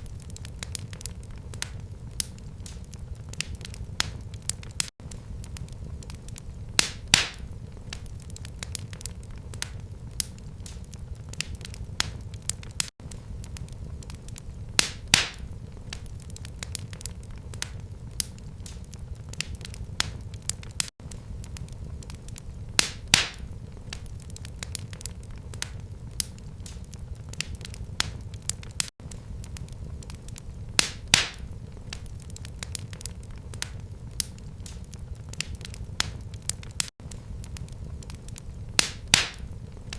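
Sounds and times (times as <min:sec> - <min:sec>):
wood fire crackling: 0:00.0 - 0:39.9
loud fire pop: 0:06.7 - 0:08.9, 0:14.7 - 0:16.8, 0:22.7 - 0:24.8, 0:30.7 - 0:32.8, 0:38.7 - 0:39.6.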